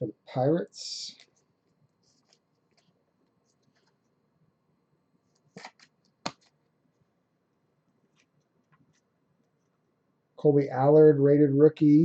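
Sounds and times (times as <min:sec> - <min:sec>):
cards rustling: 0:01.1 - 0:04.0, 0:05.3 - 0:06.7.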